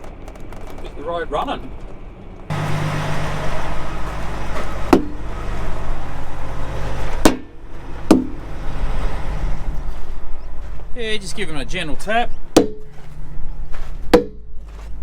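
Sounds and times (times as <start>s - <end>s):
truck engine idling: 0.0s - 15.0s
hammer striking wheel rims: 2.5s - 10.8s, 12.5s - 13.1s, 13.7s - 14.8s.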